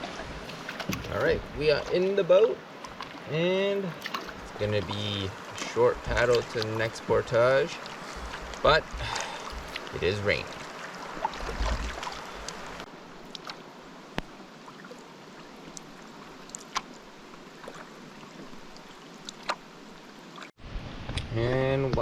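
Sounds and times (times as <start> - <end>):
raindrops ticking: 6.0 - 13.4
rain hissing: 6.8 - 12.9.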